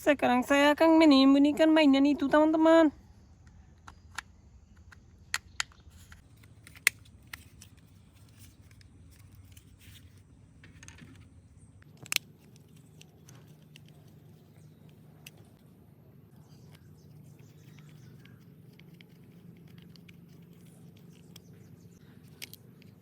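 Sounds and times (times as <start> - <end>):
plastic handling noise: 5.4 - 15.7, 16.4 - 23.0
plastic toy parts clicking: 11.8 - 14.2, 22.2 - 23.0.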